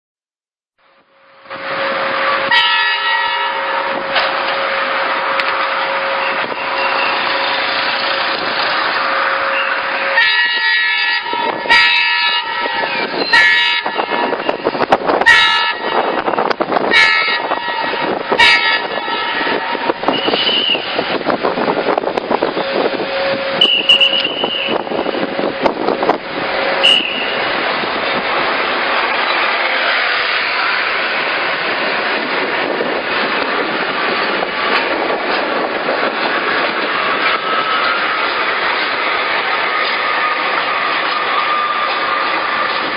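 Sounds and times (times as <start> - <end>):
train running: 0.8 - 42.9
train horn blasts and toots: 1.6 - 7.3, 9.1 - 21.1, 22.4 - 25.8, 26.6 - 27.5.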